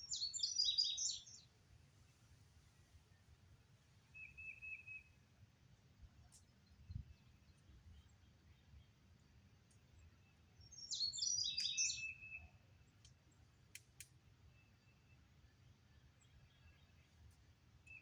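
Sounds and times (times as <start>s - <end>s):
songbird singing: 0.0s - 18.0s
faint clicks: 13.0s - 14.2s.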